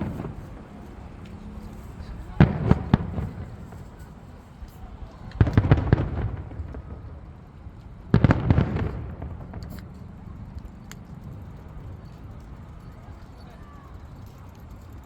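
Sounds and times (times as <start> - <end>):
fireworks bangs: 0.0 - 4.3, 5.1 - 10.2
rumble after fireworks: 0.0 - 15.0.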